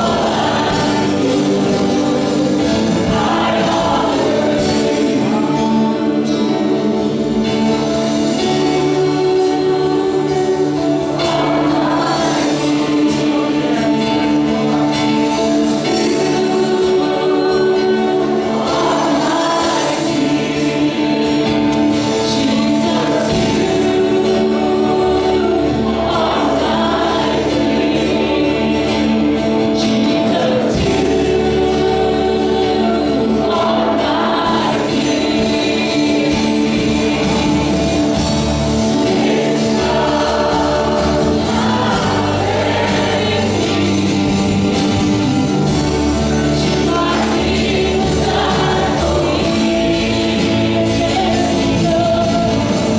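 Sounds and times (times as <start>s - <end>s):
instrumental backing with bass: 0.0s - 52.9s
worship team singing: 0.0s - 52.9s.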